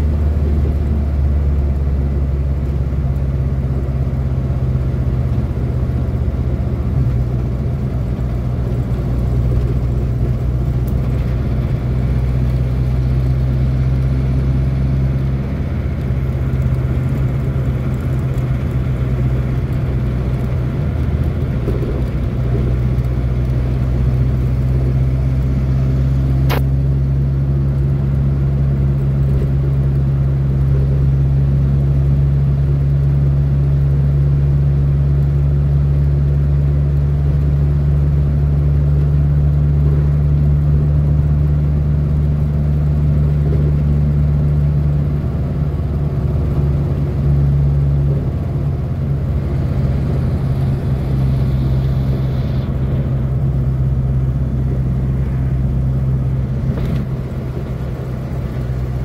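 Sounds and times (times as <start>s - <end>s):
car engine droning: 0.0s - 59.0s
road noise: 0.0s - 59.0s
sharp click: 26.4s - 26.7s.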